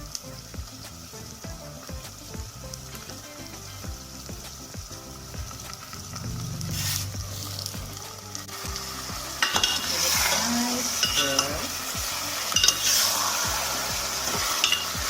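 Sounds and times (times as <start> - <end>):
onions and chicken sizzling: 0.0 - 15.0.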